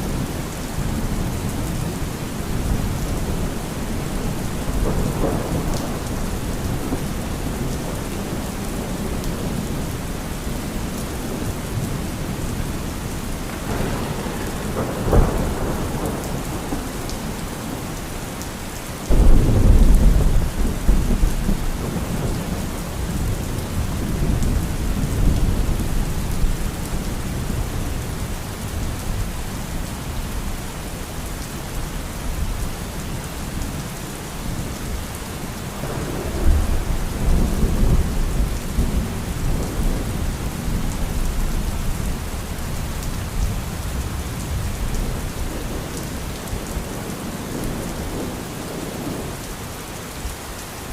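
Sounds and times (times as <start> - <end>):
steady rain: 0.0 - 50.9
thunder crack and rumble: 1.0 - 9.8, 13.4 - 18.0, 19.0 - 29.2, 35.8 - 49.2.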